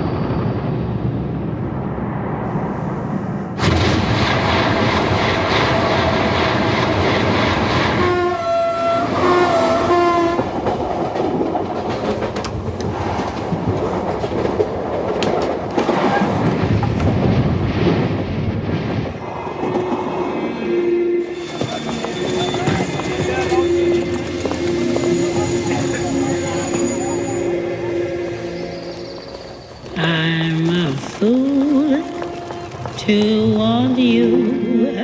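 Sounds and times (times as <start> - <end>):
train rolling rumble: 0.0 - 35.0
train horn blasts: 7.9 - 10.5, 20.6 - 29.2.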